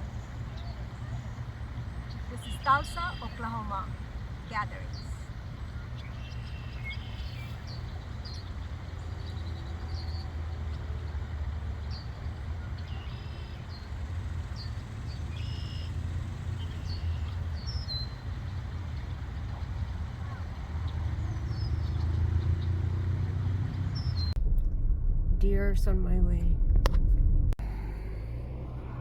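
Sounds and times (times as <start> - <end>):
birds chirping: 0.0 - 24.4
low rumble: 11.9 - 29.0.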